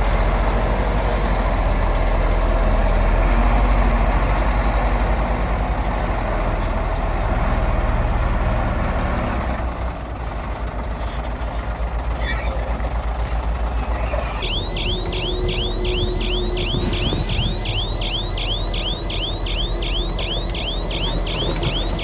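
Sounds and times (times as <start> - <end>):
heavy diesel engine running: 0.0 - 22.0
high falling chirp: 14.4 - 22.0.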